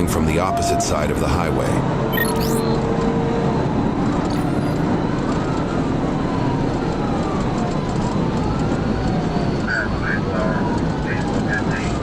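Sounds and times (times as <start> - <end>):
car road and engine noise: 1.0 - 12.0
police siren wailing: 4.3 - 12.0.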